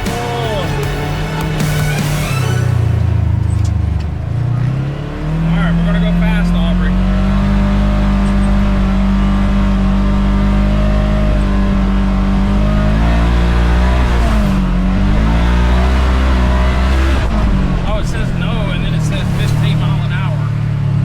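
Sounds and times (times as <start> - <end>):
utility vehicle engine running: 0.0 - 21.0.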